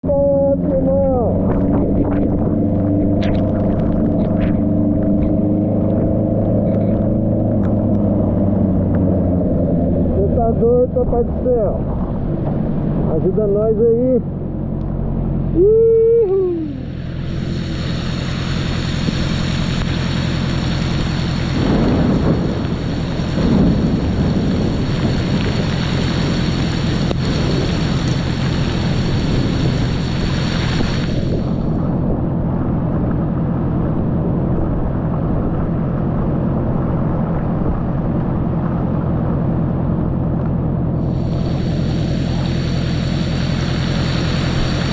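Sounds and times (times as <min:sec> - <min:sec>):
motorcycle engine running: 0:00.0 - 0:13.2, 0:14.2 - 0:44.9
wind on the microphone: 0:00.8 - 0:10.2, 0:18.6 - 0:40.3
storm rain: 0:17.2 - 0:32.2.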